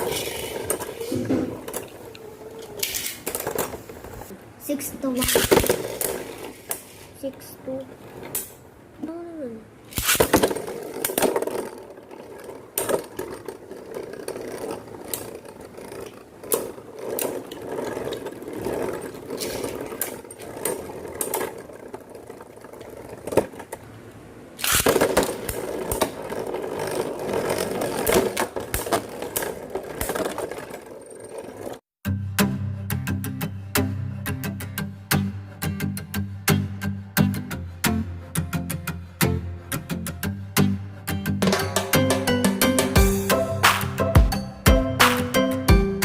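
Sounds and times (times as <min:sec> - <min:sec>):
spinning tops whirring: 0:00.0 - 0:04.3, 0:09.8 - 0:23.8, 0:24.6 - 0:31.8
spinning tops clacking: 0:09.9 - 0:23.7, 0:24.6 - 0:31.8.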